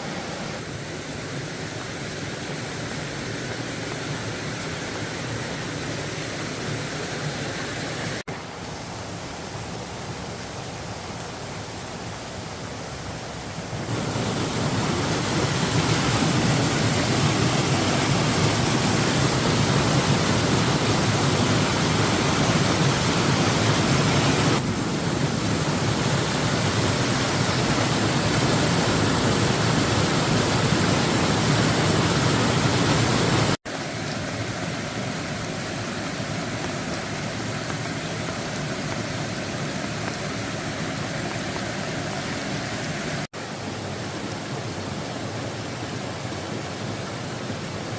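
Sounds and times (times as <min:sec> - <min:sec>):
water rushing: 0:00.0 - 0:47.9.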